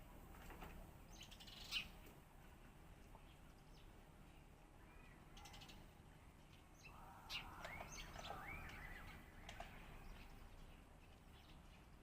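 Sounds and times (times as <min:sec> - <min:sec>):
sparrow chirping: 0:01.1 - 0:02.0, 0:06.8 - 0:12.0.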